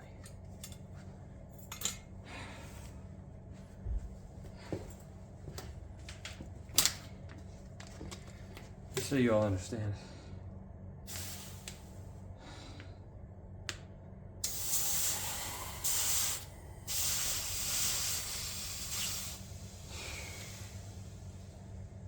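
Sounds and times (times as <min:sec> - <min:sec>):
hissing bursts: 0:11.1 - 0:11.8, 0:14.4 - 0:21.5.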